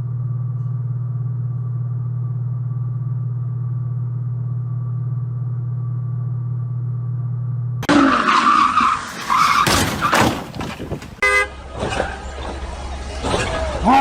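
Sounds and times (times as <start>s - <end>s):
engine drone: 0.0s - 9.6s
car tyres screeching: 7.8s - 14.0s
car horn toot: 11.2s - 11.6s.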